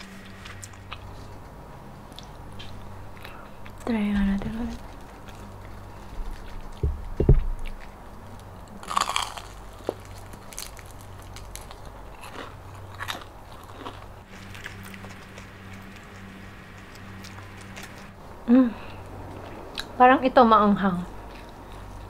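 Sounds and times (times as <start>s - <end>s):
crunchy bite: 8.7s - 18.0s.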